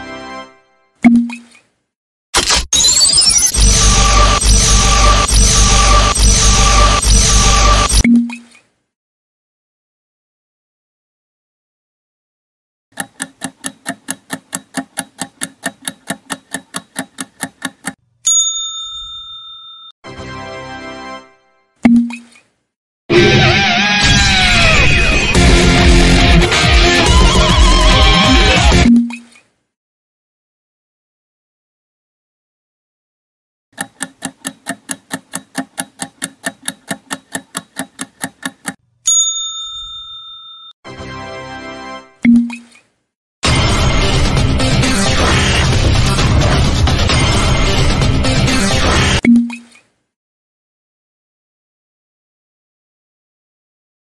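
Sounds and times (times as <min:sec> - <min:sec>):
clock-like ticking: 0:12.9 - 0:18.0, 0:33.8 - 0:38.8
bell ding: 0:18.3 - 0:19.9, 0:39.1 - 0:40.8.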